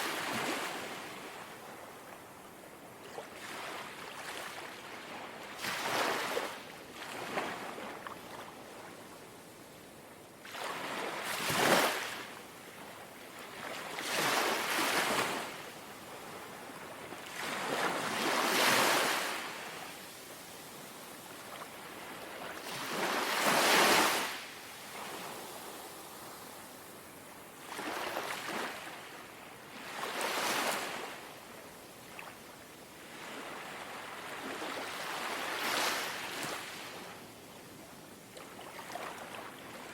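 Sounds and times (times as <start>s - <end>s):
small sea waves lapping on shore: 0.0s - 9.4s, 10.4s - 39.9s.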